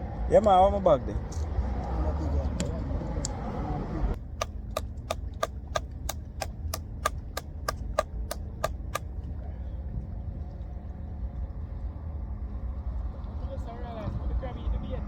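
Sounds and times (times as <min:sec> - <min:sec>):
evenly spaced sharp clicks: 0:04.4 - 0:09.0.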